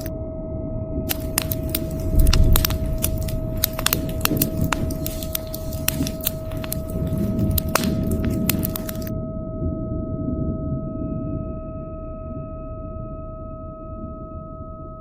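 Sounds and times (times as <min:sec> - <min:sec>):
wood fire crackling and popping: 0:01.1 - 0:09.1.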